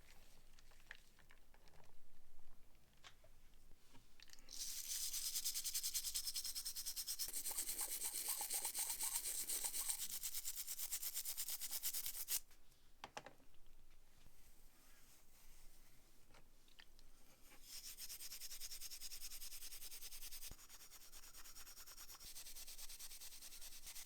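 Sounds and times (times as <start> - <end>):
scrubbing on metal part: 6.0 - 10.2.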